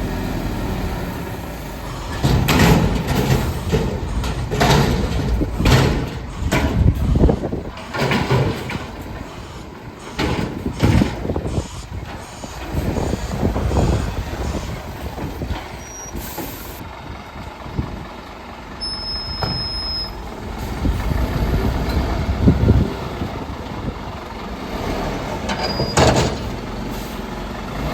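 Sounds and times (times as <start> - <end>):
garbage truck running: 0.0 - 27.9
loud irregular bangs: 2.1 - 9.4.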